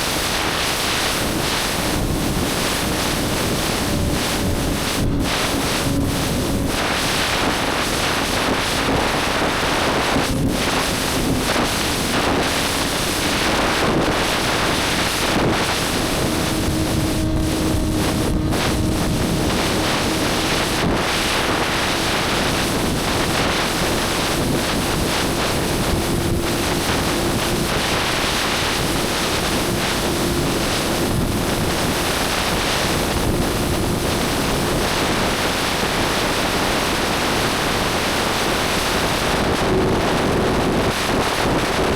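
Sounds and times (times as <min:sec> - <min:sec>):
wind rushing over microphone: 0:00.0 - 0:41.9
motorcycle engine: 0:09.6 - 0:31.7.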